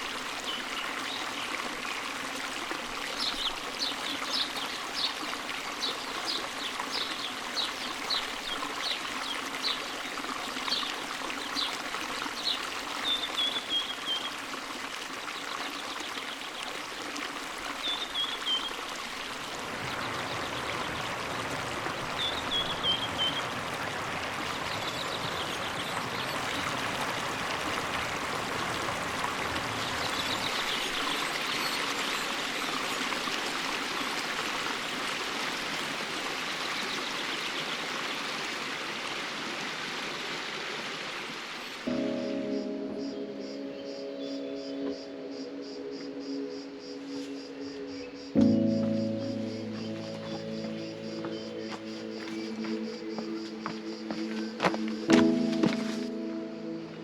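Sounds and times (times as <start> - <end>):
forest stream running: 0.0 - 57.0
bird calling: 43.1 - 56.3.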